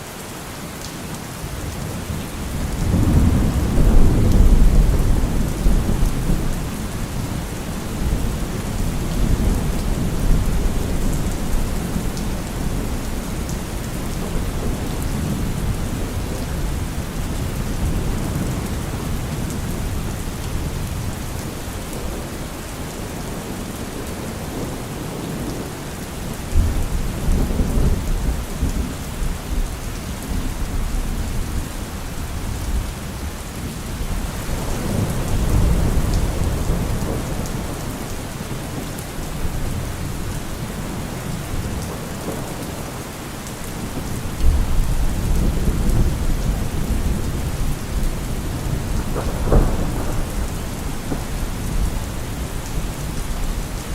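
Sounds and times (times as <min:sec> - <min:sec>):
steady rain: 0:00.0 - 0:53.9
rolling thunder: 0:02.4 - 0:22.3, 0:33.9 - 0:42.9, 0:43.6 - 0:53.9.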